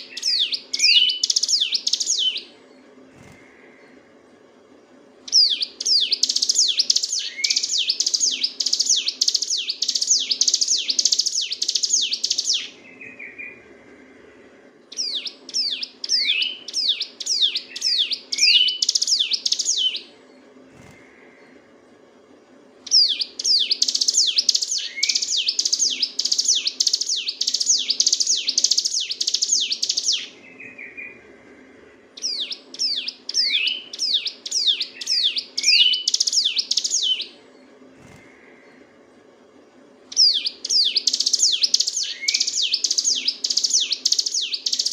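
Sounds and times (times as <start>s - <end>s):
bird singing rapid downslurred notes: 0.0s - 2.6s, 5.3s - 13.8s, 14.9s - 20.2s, 22.8s - 37.4s, 40.1s - 44.9s
faint low hum: 0.0s - 44.9s.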